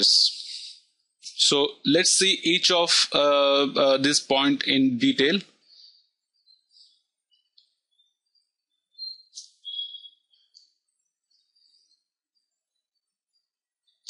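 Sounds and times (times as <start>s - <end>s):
faint high chirps: 5.7s - 14.0s.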